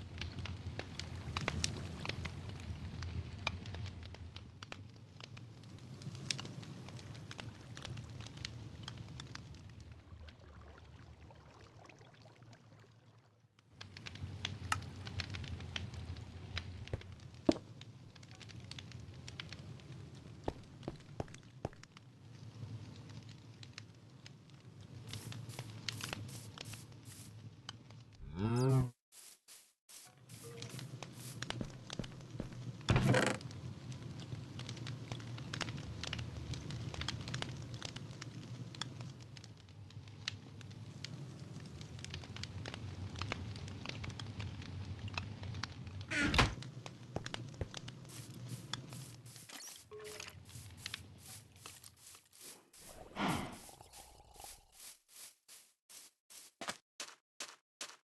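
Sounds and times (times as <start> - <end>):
campfire crackling: 0.0 - 12.2, 13.6 - 28.3, 29.2 - 56.5.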